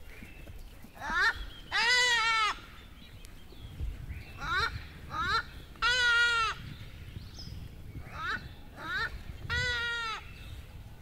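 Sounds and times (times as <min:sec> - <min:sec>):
bird calling: 0:00.1 - 0:03.6, 0:07.9 - 0:10.6.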